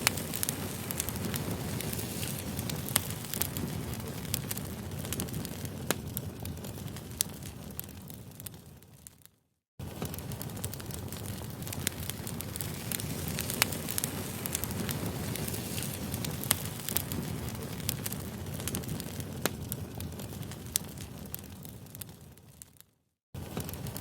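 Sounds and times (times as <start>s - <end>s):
crackling campfire: 0.0s - 24.0s.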